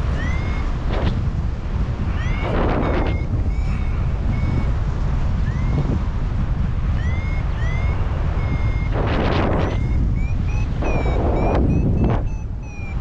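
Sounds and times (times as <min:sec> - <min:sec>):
wind buffeting on microphone: 0:00.0 - 0:13.0
short high beeps rising in pitch: 0:00.1 - 0:00.7, 0:02.1 - 0:04.7, 0:05.4 - 0:06.0, 0:06.9 - 0:13.0.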